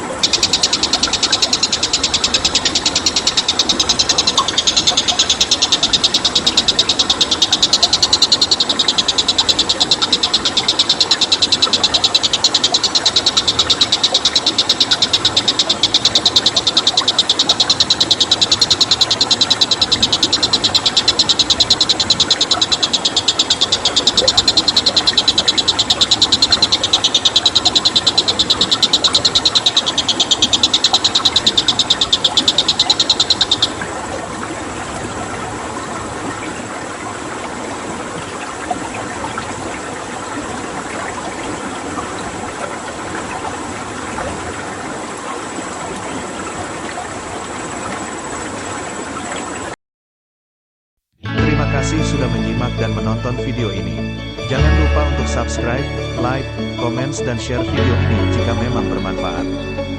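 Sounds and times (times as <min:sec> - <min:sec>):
animal's rapid pulsing call: 0:00.0 - 0:34.2.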